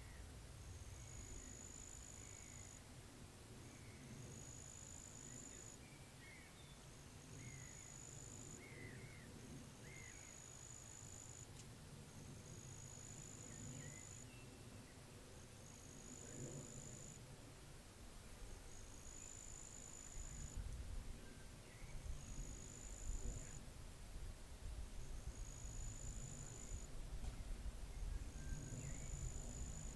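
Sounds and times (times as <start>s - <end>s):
low wind rumble: 11.4s - 29.9s.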